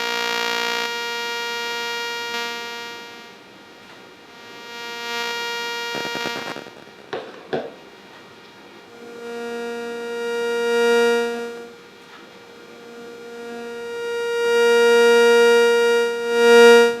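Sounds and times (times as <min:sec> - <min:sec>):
electronic interference buzz: 0:00.0 - 0:17.0.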